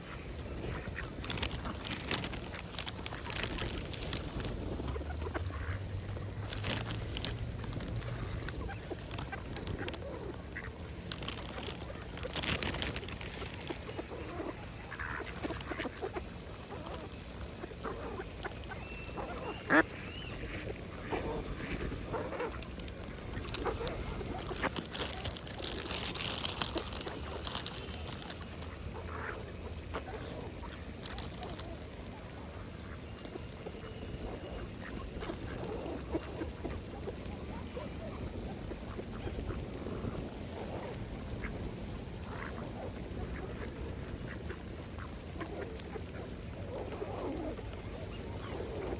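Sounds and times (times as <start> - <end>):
steady low rumble: 0.0 - 25.6
ducks dabbling in water: 0.0 - 48.9
ducks quacking: 0.0 - 48.9.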